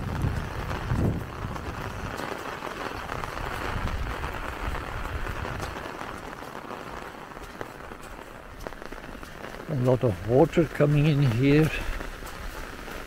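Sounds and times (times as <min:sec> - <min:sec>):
drops tapping on umbrella: 0:00.0 - 0:13.0
rain hiss: 0:00.0 - 0:13.0.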